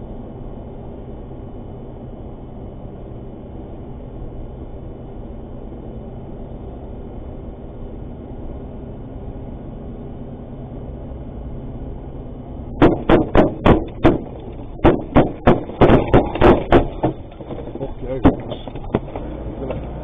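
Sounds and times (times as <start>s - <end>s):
engine and road noise in cab: 0.0s - 20.0s
loud sharp bangs: 12.7s - 19.2s.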